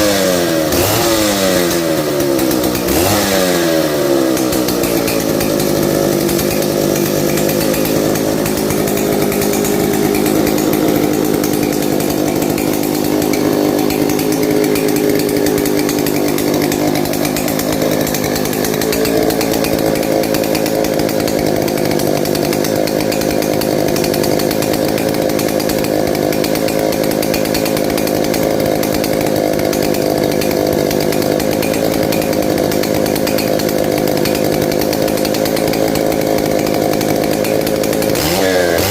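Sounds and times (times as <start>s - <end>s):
chainsaw engine running: 0.0s - 38.9s.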